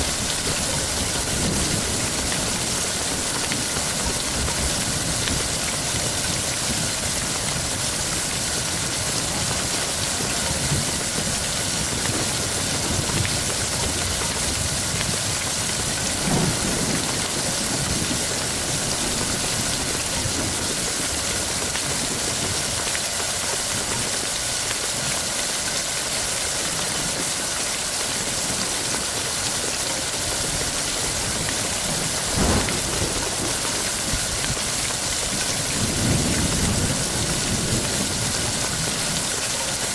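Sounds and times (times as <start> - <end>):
thunder rumbling: 0.0 - 8.1, 10.5 - 22.6, 30.7 - 39.3
heavy rain: 0.0 - 39.9.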